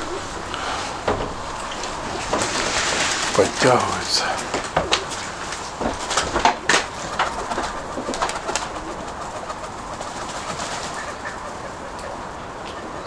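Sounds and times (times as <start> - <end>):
pigeons cooing: 0.0 - 13.0
sharp clicks or flutters: 6.1 - 11.0.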